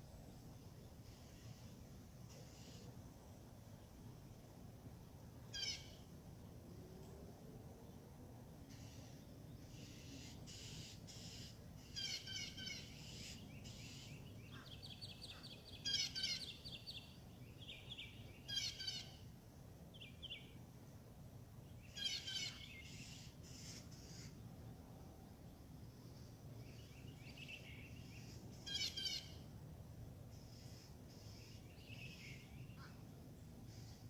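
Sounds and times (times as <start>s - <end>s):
songbirds chirping: 0.0s - 34.0s
steady high bird trill: 9.7s - 17.1s, 17.7s - 19.2s, 26.8s - 29.4s.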